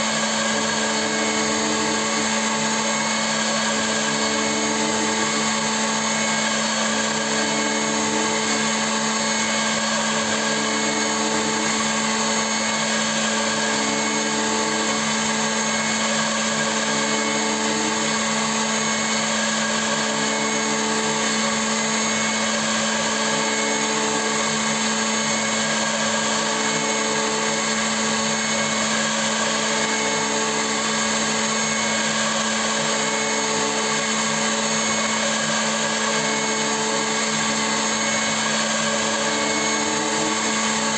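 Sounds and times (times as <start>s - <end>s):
milling machine spindle whine: 0.0s - 40.9s.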